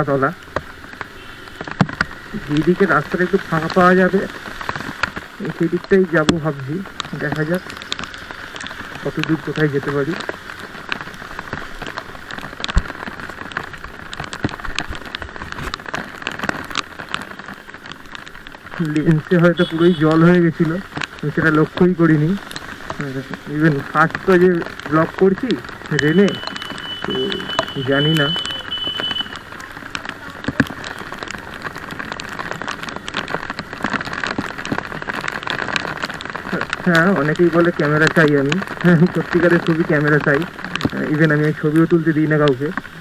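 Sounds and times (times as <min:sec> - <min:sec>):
rain falling: 0:00.0 - 0:43.0
raindrops tapping near microphone: 0:00.0 - 0:43.0.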